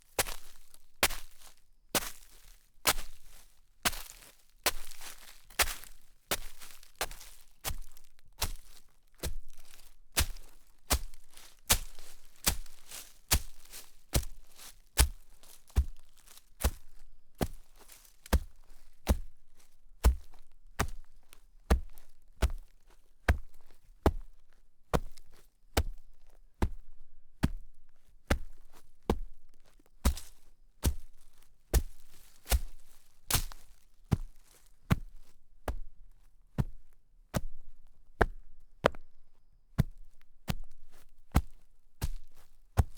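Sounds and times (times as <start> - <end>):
footsteps crunching in snow: 0.2 - 21.2, 30.1 - 35.2.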